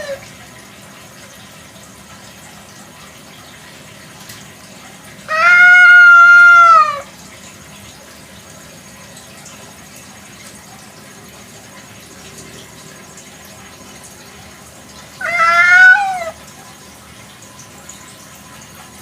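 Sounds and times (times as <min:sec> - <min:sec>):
cat meowing: 0:05.3 - 0:07.1, 0:15.2 - 0:16.4.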